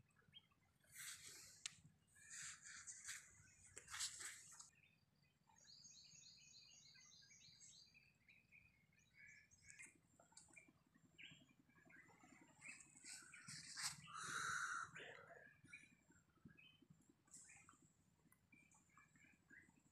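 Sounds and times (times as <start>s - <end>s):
harsh bird call: 14.0s - 15.2s.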